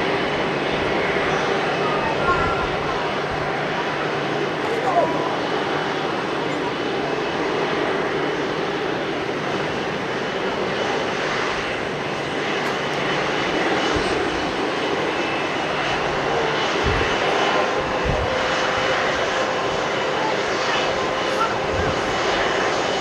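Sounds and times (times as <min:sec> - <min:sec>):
jet engines rumbling: 0:00.0 - 0:23.0
wind thumps on microphone: 0:16.8 - 0:17.2, 0:17.9 - 0:18.5.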